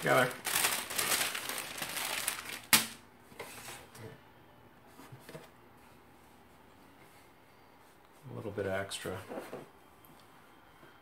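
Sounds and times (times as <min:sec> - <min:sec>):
crinkling rustling handling noise: 0:00.0 - 0:03.9.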